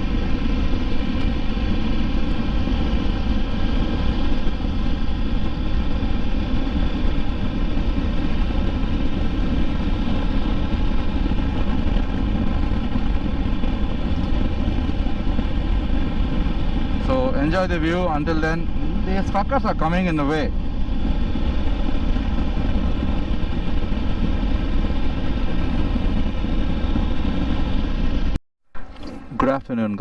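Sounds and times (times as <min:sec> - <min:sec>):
road rumble: 0:00.0 - 0:29.7
wind: 0:00.0 - 0:30.0.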